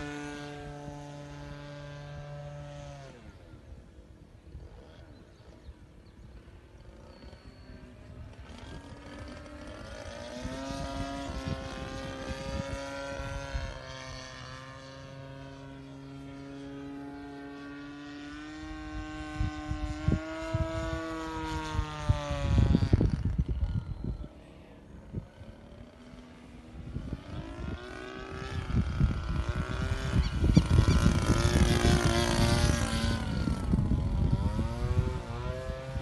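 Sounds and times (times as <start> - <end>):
model airplane engine droning: 0.0 - 36.0.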